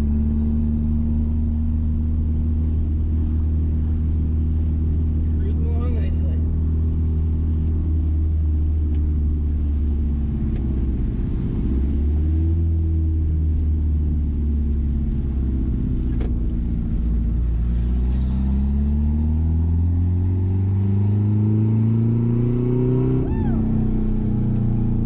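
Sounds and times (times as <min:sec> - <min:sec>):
pickup truck engine cruising: 0:22.3 - 0:25.0.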